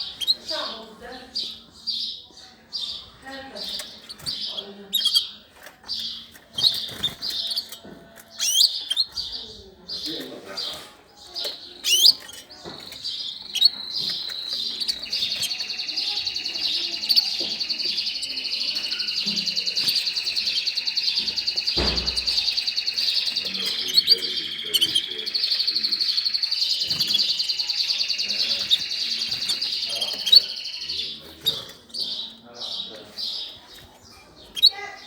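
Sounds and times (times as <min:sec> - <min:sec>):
songbird rolling trill: 0:11.8 - 0:31.1.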